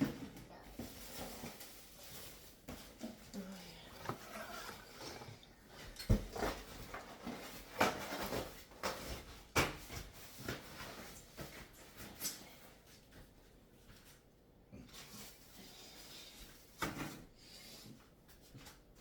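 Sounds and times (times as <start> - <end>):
rustling: 0.6 - 9.2.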